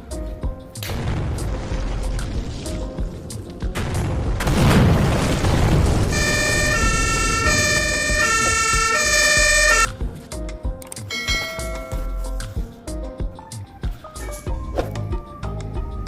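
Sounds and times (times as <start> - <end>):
loud boom: 3.8 - 7.8
two-tone emergency siren: 6.1 - 9.9.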